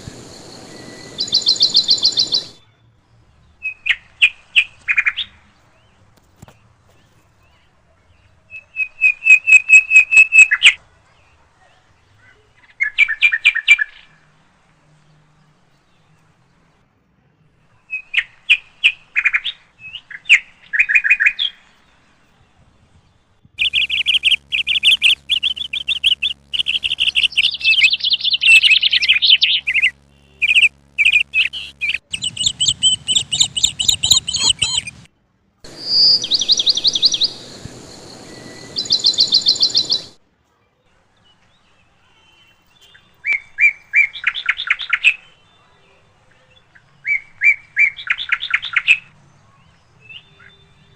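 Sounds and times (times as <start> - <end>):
steady low hum: 0.0 - 2.6, 23.5 - 35.1, 35.7 - 40.2
small birds chirping: 0.0 - 11.4, 17.9 - 35.1, 35.7 - 40.2.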